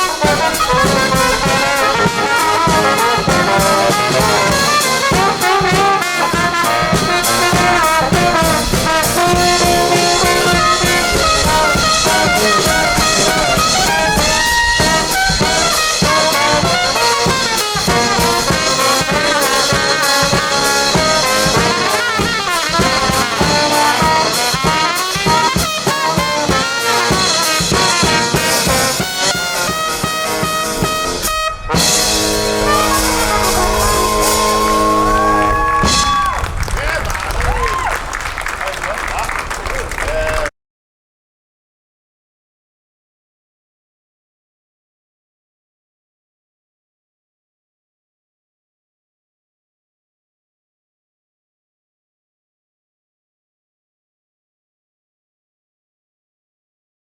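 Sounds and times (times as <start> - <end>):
brass band playing: 0.0 - 40.5.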